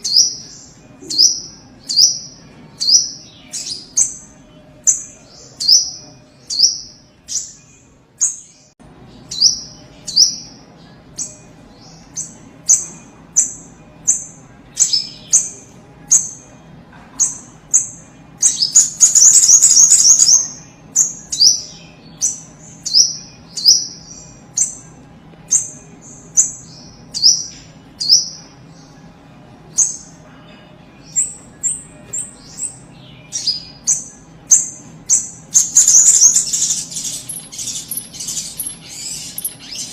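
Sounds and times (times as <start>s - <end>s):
bird rapid chattering: 18.5s - 20.5s, 33.9s - 39.9s.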